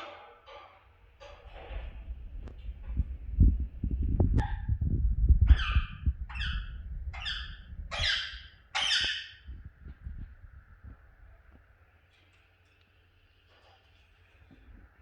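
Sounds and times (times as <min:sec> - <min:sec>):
low thumps and rumble: 0:01.3 - 0:08.0, 0:09.5 - 0:11.2
budgerigar squawking: 0:05.5 - 0:09.4.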